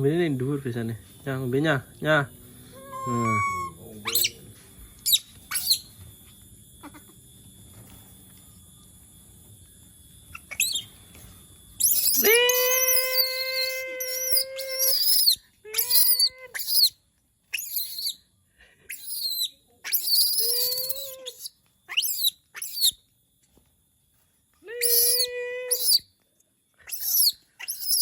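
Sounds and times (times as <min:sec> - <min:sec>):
monkey cries and squeals: 0:02.7 - 0:04.3, 0:05.0 - 0:05.9, 0:10.3 - 0:10.9, 0:11.8 - 0:18.2, 0:18.9 - 0:23.0, 0:24.8 - 0:26.1, 0:26.8 - 0:28.0
monkey wailing call: 0:02.7 - 0:04.3, 0:11.8 - 0:16.9, 0:18.9 - 0:22.9, 0:24.8 - 0:26.0, 0:26.8 - 0:28.0.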